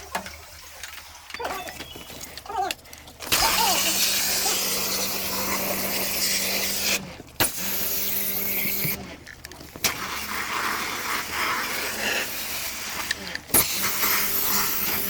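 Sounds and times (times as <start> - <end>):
pump humming: 0.0 - 15.0
pressure sprayer hissing: 3.3 - 9.0.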